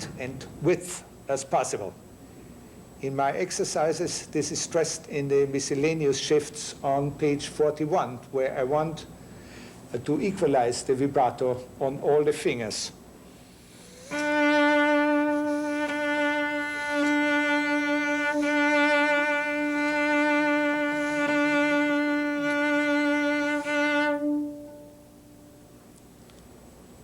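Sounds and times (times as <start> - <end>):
cello bowed note with vibrato: 13.8 - 25.8.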